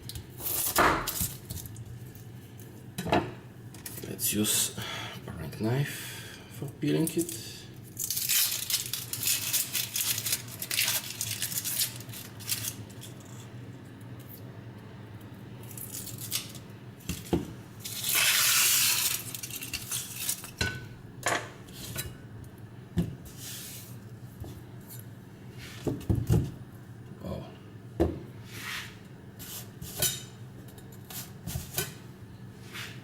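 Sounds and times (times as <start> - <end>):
onion skin crackling and rustling: 7.0 - 13.5, 15.6 - 20.6.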